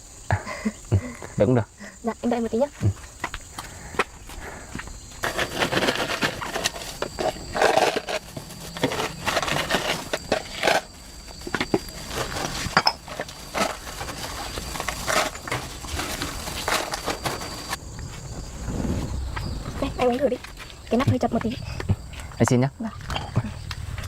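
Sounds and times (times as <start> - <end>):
insects droning: 0.0 - 24.0
knocks and clinks of handling: 8.8 - 17.8.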